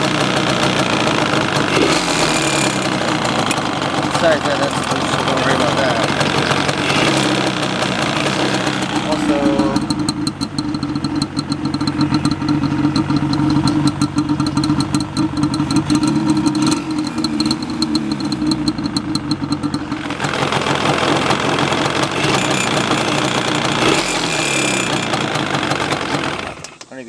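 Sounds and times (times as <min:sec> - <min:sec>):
grumbling noise: 0:00.0 - 0:09.9
two-stroke engine idling: 0:00.0 - 0:27.0.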